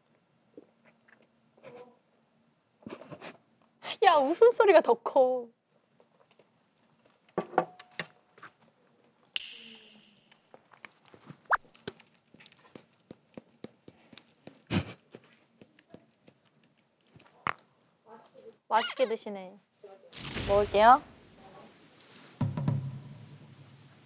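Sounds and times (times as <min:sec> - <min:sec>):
loud knock: 0:22.4 - 0:23.1.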